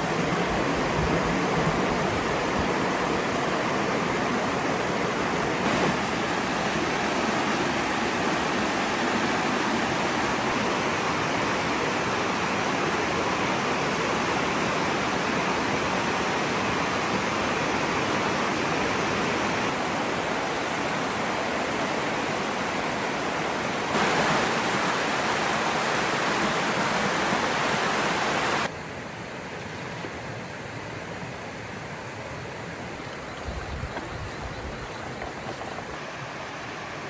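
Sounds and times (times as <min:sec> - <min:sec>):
waterfall rushing: 0:00.0 - 0:28.7.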